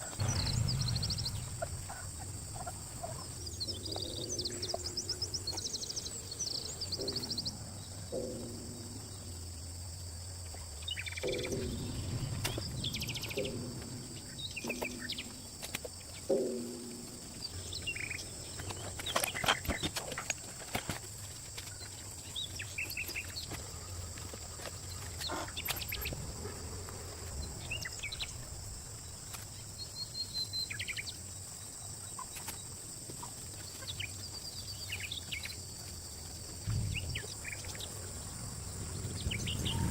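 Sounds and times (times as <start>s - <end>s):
steady high-pitched hum: 0.0s - 31.8s
birds chirping: 0.0s - 39.9s.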